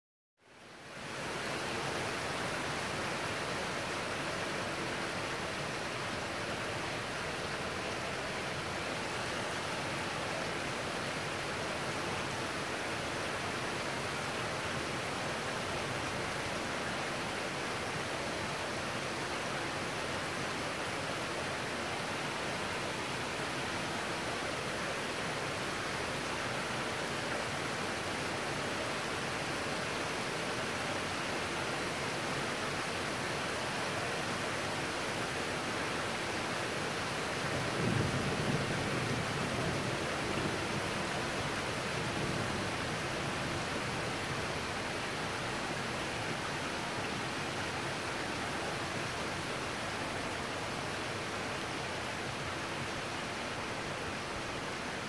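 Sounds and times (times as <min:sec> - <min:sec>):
heavy rain hissing: 0:22.0 - 0:55.0.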